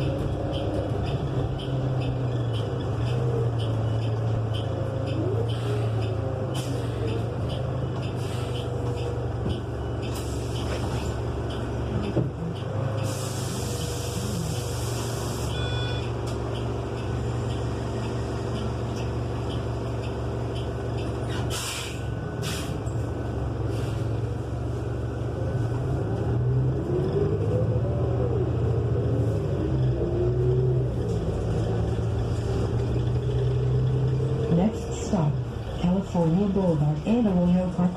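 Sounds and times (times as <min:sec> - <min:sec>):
bus engine running loudly: 0:00.0 - 0:37.9
air brakes hissing: 0:05.5 - 0:06.0, 0:06.6 - 0:07.2, 0:08.1 - 0:08.9, 0:10.1 - 0:11.1, 0:13.0 - 0:15.6, 0:21.2 - 0:23.0, 0:23.6 - 0:24.2.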